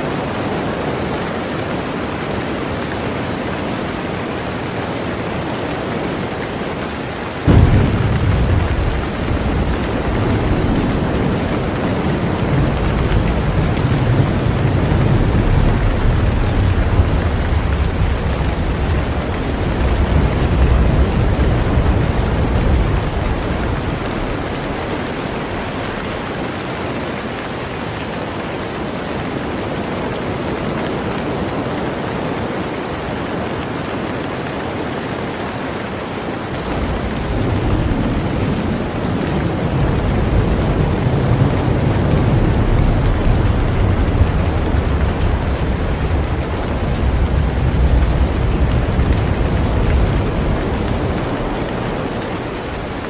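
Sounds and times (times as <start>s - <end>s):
heavy rain on a boat: 0.0s - 53.0s
deep low rumble: 7.5s - 11.7s.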